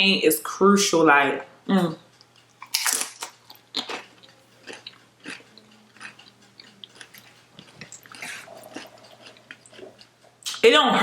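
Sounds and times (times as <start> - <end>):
chewing food: 2.2 - 10.6.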